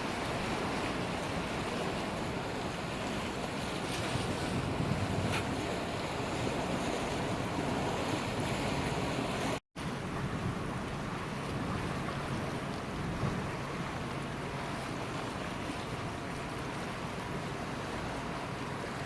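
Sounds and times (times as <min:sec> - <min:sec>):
sea wash: 0:00.0 - 0:19.0
wind buffeting microphone: 0:00.1 - 0:14.1.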